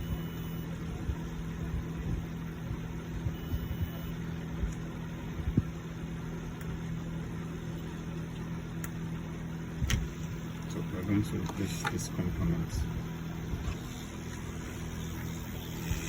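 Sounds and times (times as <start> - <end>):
low electrical hum: 0.0 - 16.0
multimeter short high beeps: 3.3 - 4.2.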